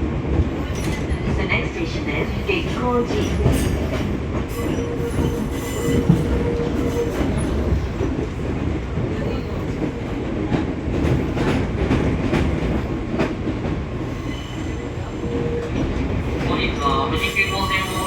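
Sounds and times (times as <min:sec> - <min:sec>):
train wheels rumbling on rail: 0:00.0 - 0:18.0
clacks over rail joints: 0:02.6 - 0:14.1.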